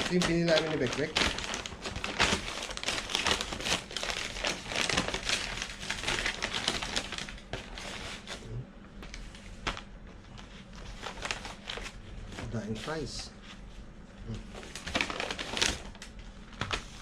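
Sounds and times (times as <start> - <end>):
food packaging crinkling: 0.0 - 8.3, 10.4 - 12.0, 14.6 - 17.0.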